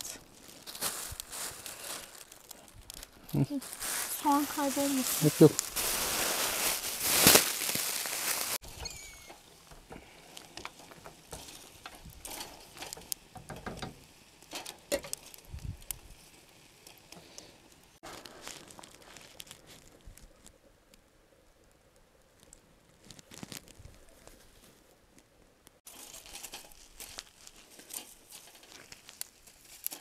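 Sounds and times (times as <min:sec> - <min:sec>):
embers crackling: 0:00.0 - 0:30.0.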